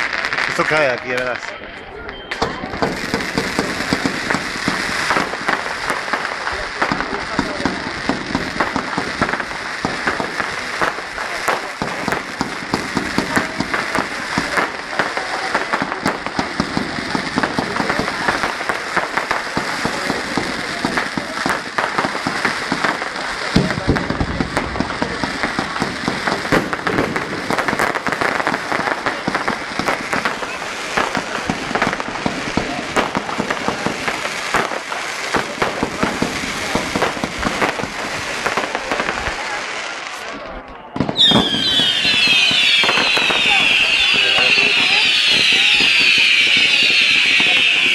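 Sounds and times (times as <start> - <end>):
fireworks bangs and crackling: 0.0 - 47.9
deep firework boom: 2.3 - 39.6.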